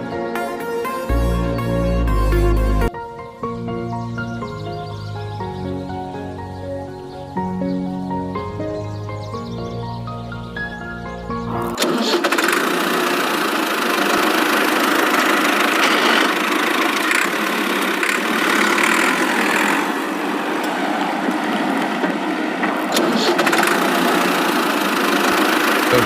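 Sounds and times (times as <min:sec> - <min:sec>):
vehicle engine starting and running: 0:11.4 - 0:26.0.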